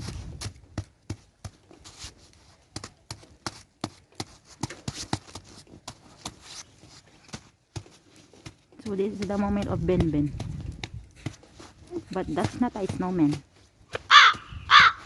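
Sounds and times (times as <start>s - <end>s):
snow and ice crunching: 3.5s - 13.9s.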